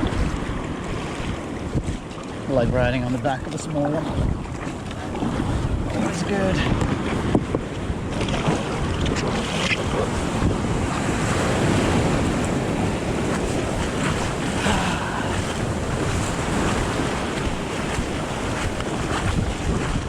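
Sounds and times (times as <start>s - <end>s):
water rushing around kayak hull: 0.0s - 20.0s
wind on microphone: 0.0s - 20.0s.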